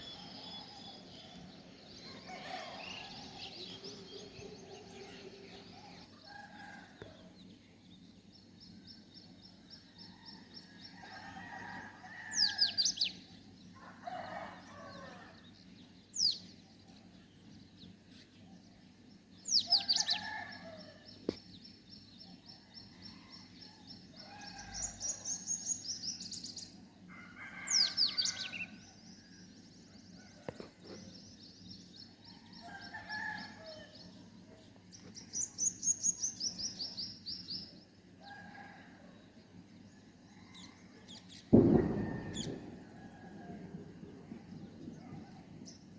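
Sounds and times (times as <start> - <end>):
sharp falling bird calls: 41.2 - 43.1.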